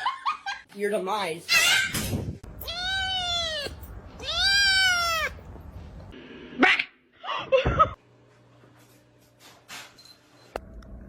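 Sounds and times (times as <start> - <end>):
cat meowing: 2.5 - 5.5.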